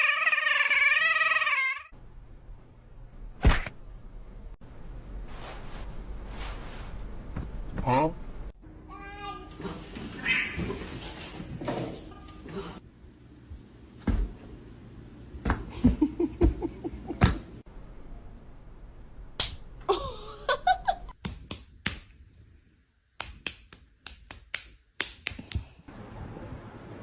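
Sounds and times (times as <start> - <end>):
sharp slaps and clicks: 3.4 - 3.8, 19.4 - 19.6, 21.2 - 22.2, 23.2 - 25.8.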